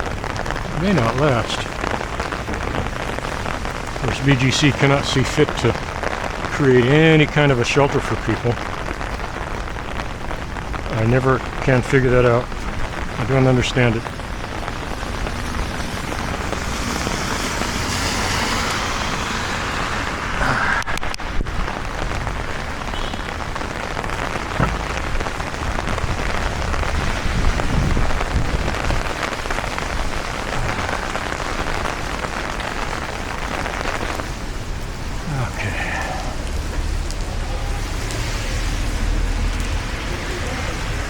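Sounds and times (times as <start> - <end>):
heavy rain falling: 0.0 - 41.0
sharp drop taps: 24.6 - 25.0.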